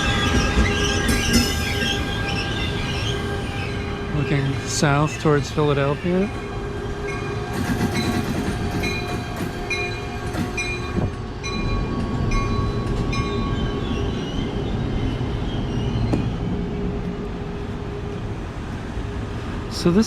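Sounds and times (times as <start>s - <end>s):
wheels squealing: 0.0s - 4.6s
train wheels rumbling on rail: 0.0s - 20.0s.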